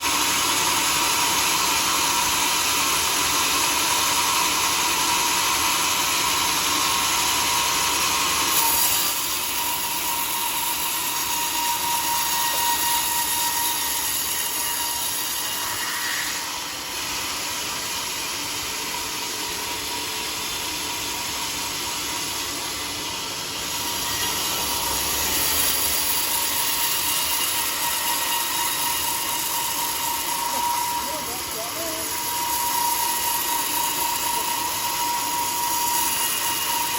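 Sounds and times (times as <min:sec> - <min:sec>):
sawmill saw cutting log: 0:00.0 - 0:36.9
steady saw whine: 0:00.0 - 0:36.9.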